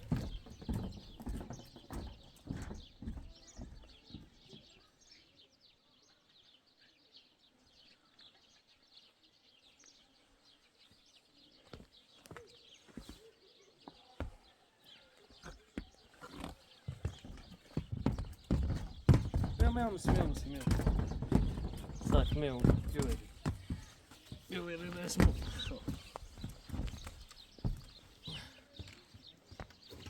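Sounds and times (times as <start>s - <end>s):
footsteps on hard ground: 0.0s - 4.8s, 11.6s - 14.5s, 15.4s - 30.0s
faint high bird chirps: 0.0s - 20.6s
sharp knocks: 18.2s - 23.2s.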